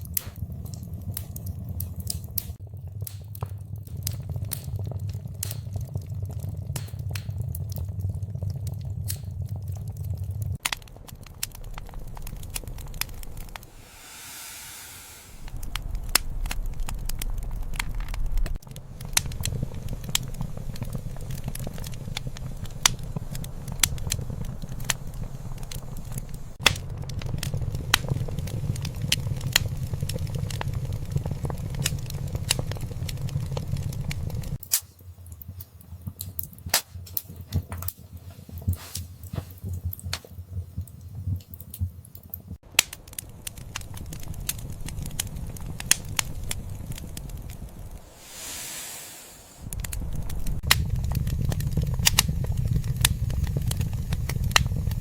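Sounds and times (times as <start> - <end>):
wood fire crackling and popping: 0.0 - 55.0
soft hiss: 13.7 - 15.5, 48.0 - 49.7.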